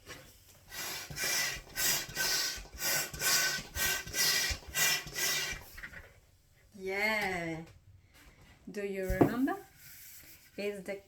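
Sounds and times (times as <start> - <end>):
hands rubbing a balloon: 0.2 - 6.1, 9.0 - 10.7.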